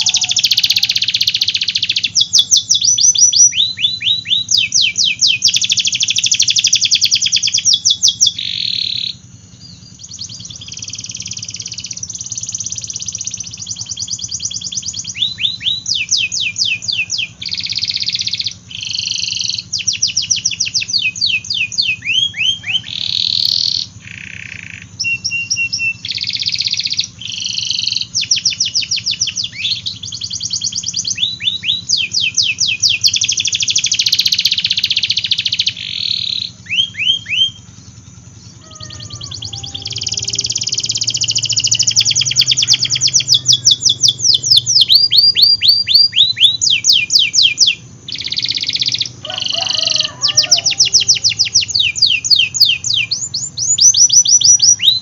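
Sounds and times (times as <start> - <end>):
canary singing rapid trills: 0.0 - 55.0
steady low hum: 0.0 - 55.0.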